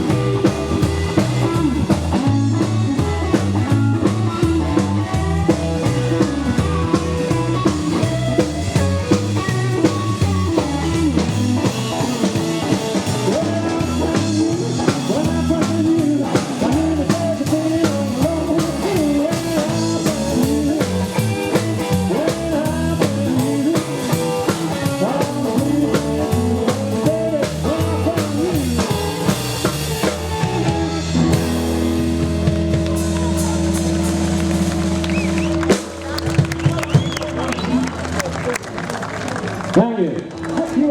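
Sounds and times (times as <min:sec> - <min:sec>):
rockabilly band playing: 0:00.0 - 0:40.9.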